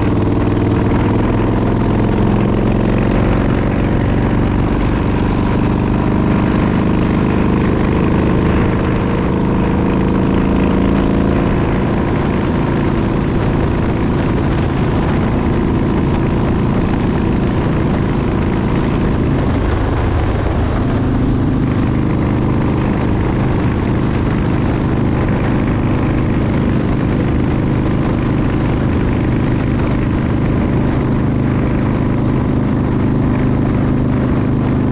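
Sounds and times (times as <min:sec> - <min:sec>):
wind rushing: 0:00.0 - 0:23.2
motorcycle engine running: 0:00.0 - 0:34.9
road noise: 0:00.0 - 0:34.9.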